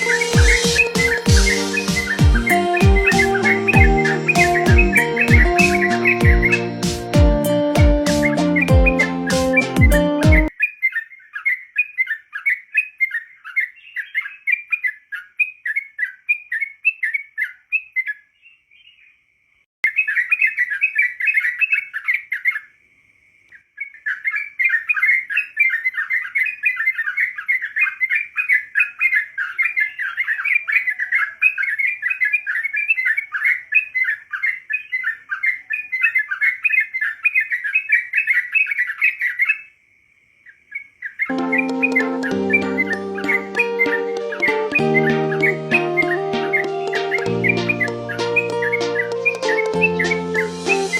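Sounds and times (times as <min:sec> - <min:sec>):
bird song of short chirps: 0:00.0 - 0:06.7, 0:10.5 - 0:19.2, 0:23.8 - 0:39.7.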